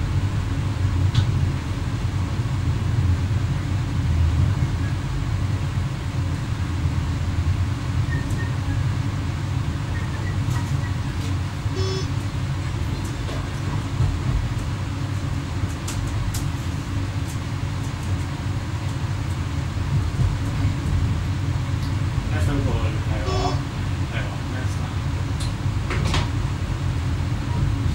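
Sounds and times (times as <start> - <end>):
train rumbling on rails: 0.0 - 27.9
pulsed tone: 11.7 - 12.2, 23.2 - 23.7.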